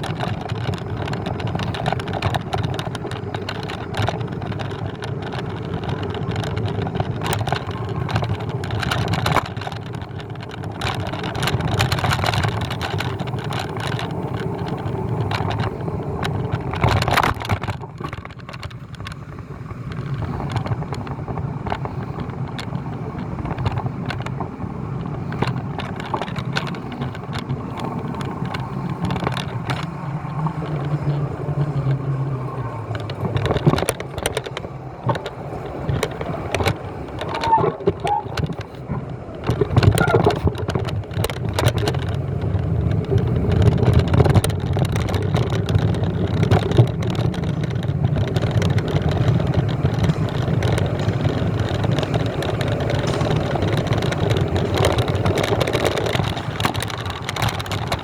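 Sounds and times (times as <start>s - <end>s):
vehicle and road rumble: 0.0s - 58.0s
short knocks and rattles: 20.0s - 58.0s.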